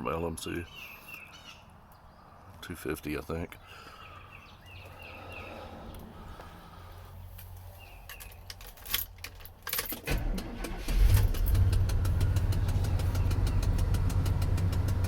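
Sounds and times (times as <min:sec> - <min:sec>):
keys rattling: 0:07.9 - 0:10.1
engine cranking and idling: 0:09.3 - 0:15.0.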